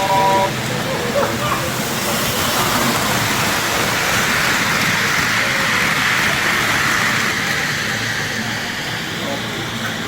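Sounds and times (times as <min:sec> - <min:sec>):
model train whirring and rattling: 0:00.0 - 0:10.0.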